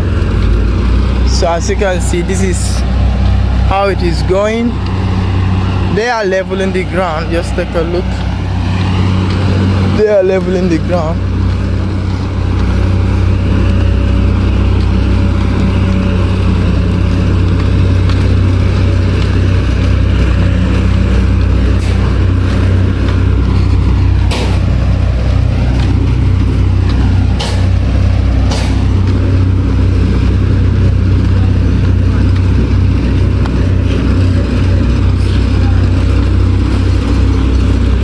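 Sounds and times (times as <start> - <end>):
diesel machinery engine droning: 0.0 - 38.0
sharp knocks: 21.0 - 29.4.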